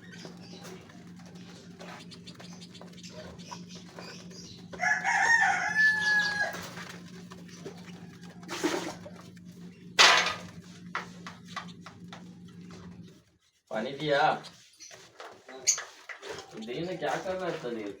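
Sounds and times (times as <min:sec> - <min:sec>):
steady low hum: 0:00.0 - 0:14.4
rooster crowing: 0:04.7 - 0:07.0.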